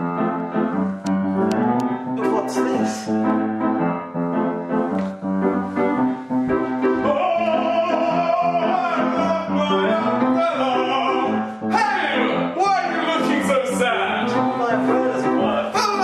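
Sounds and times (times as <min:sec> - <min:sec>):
piano playing rhythmic chords: 0:00.0 - 0:16.0.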